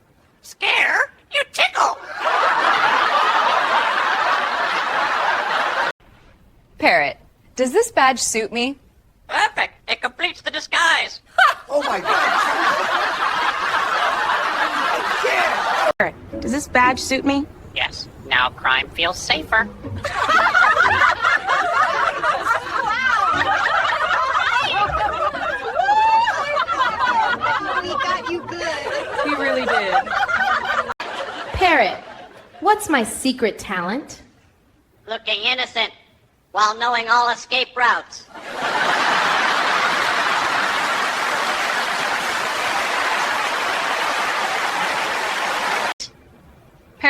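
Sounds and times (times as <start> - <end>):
crowd laughing: 2.0 - 6.0, 11.4 - 16.0, 19.8 - 32.6, 38.4 - 46.0.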